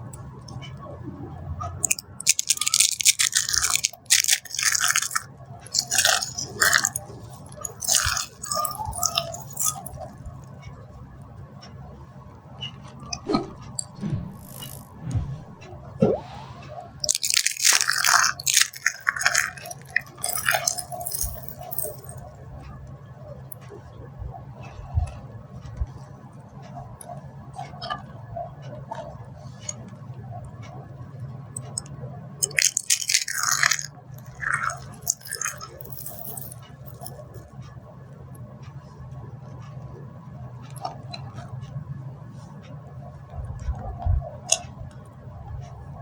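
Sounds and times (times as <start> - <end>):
dry soap crunching: 1.9 - 10.1, 17.0 - 22.2, 32.4 - 37.1.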